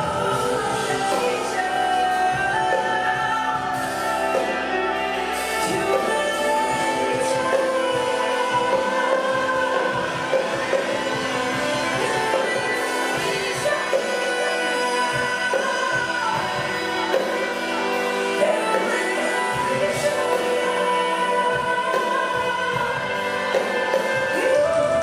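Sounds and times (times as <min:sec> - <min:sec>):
sustained instrumental chords: 0:00.0 - 0:25.0
woman singing long held notes: 0:00.0 - 0:25.0.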